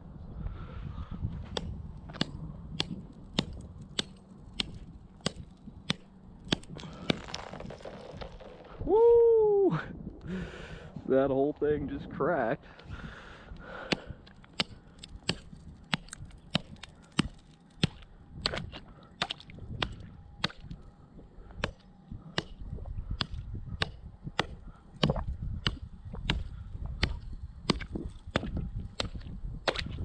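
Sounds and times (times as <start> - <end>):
wind rumble on microphone: 0.0 - 30.0
axe chopping ice: 1.6 - 8.8, 13.9 - 20.7, 23.2 - 30.0.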